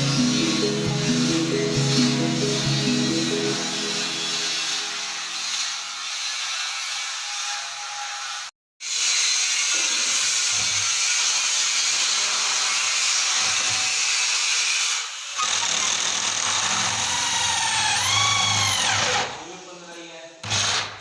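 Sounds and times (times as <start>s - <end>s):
power tool working wood: 0.0s - 19.4s.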